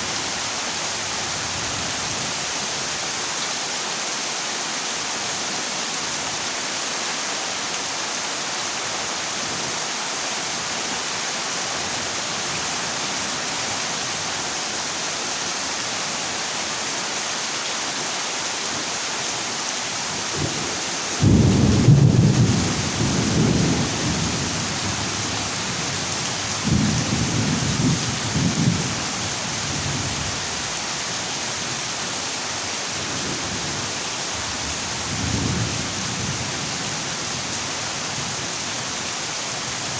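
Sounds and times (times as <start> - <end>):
heavy rain on a metal roof: 0.0 - 39.9
thunder rumbling: 21.2 - 25.2.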